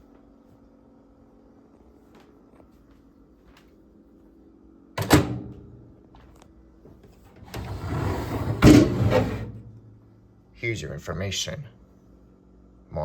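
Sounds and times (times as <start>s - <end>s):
microwave door shutting: 5.0s - 5.8s, 7.3s - 9.7s.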